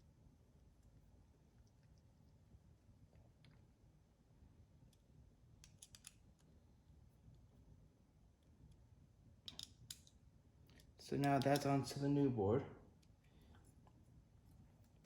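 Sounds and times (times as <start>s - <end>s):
small parts clicking: 5.6s - 6.2s, 9.5s - 11.7s.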